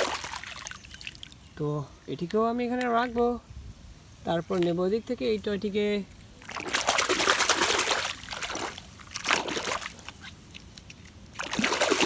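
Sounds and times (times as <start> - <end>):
water sloshing and splashing: 0.0 - 1.6, 6.4 - 12.0.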